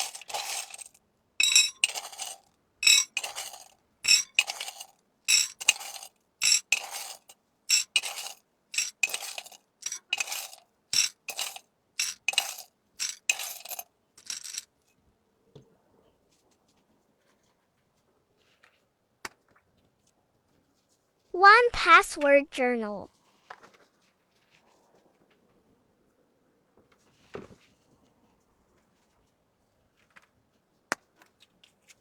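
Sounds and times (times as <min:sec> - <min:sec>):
small hard items clinking: 0:00.0 - 0:14.7.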